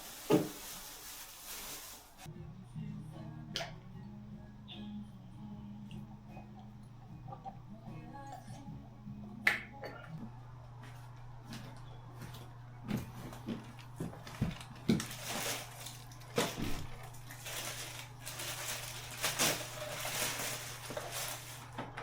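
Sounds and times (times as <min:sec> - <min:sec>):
steady low hum: 0:02.3 - 0:22.0.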